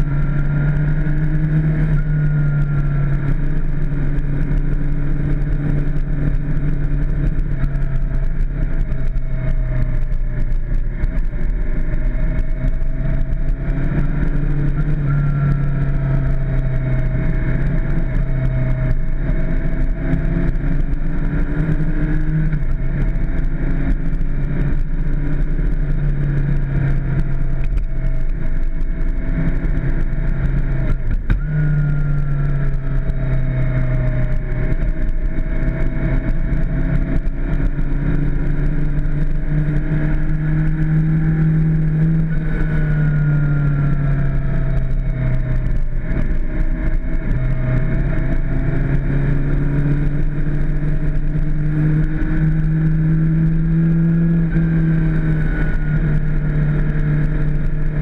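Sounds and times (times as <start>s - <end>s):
motorcycle engine changing gears: 0.0s - 58.0s.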